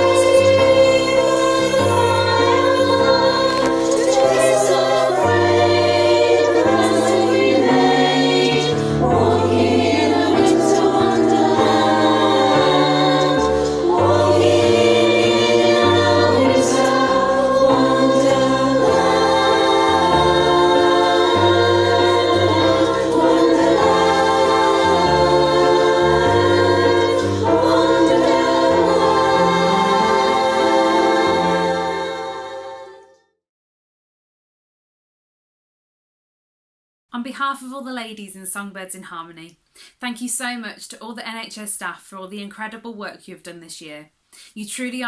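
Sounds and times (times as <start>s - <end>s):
women's choir singing: 0.0s - 33.2s.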